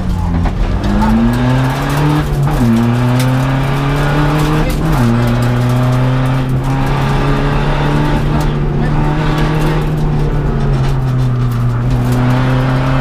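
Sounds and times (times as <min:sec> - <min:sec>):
car engine accelerating through gears: 0:00.0 - 0:13.0.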